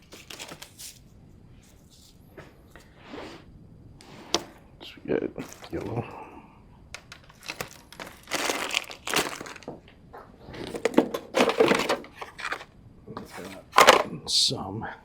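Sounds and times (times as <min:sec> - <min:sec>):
wire rustling and crinkling: 0:05.4 - 0:06.1, 0:06.9 - 0:12.7.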